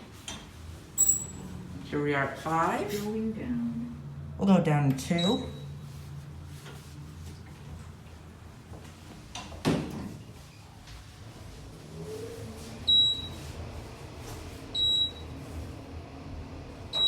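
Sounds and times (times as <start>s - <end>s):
elevator hum: 0.0s - 9.1s, 11.1s - 17.0s
short high beeps: 1.0s - 1.3s.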